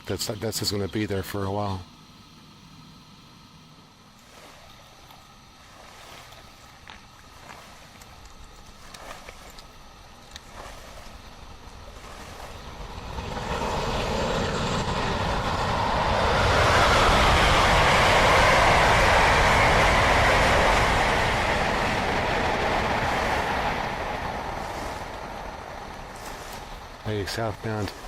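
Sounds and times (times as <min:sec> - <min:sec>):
passenger train passing: 0:12.6 - 0:28.0.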